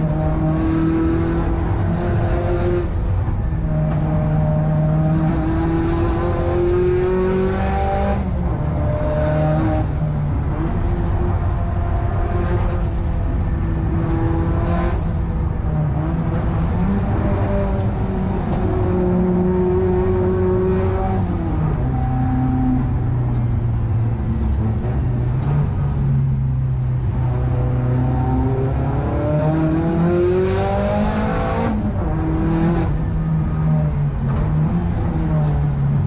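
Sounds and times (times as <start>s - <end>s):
car engine revving: 0.0s - 36.0s.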